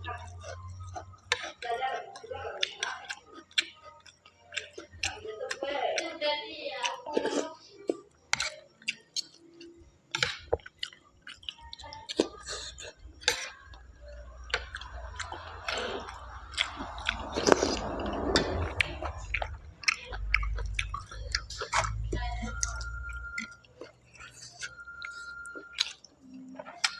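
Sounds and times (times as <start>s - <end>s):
chewing and biting: 0.1s - 6.2s, 6.8s - 26.9s
mouth clicks and smacks: 6.8s - 26.9s.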